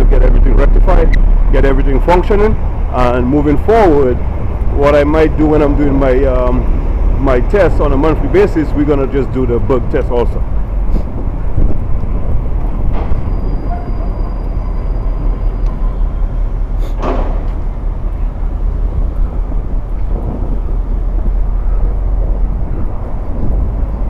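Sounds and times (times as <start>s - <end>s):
low city rumble: 0.0s - 24.0s.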